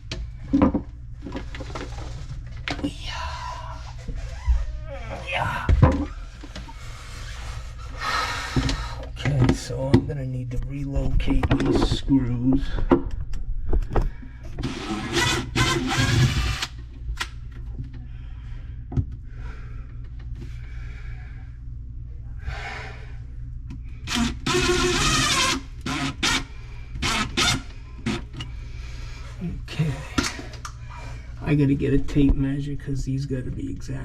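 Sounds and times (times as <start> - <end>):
cordless drill whirring: 14.6 - 16.8, 24.0 - 28.3.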